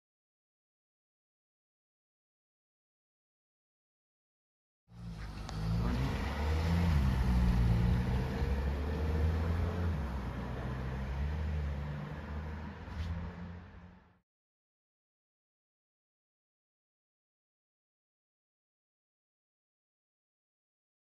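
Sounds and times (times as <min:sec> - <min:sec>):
vehicle engine accelerating: 0:04.9 - 0:14.2.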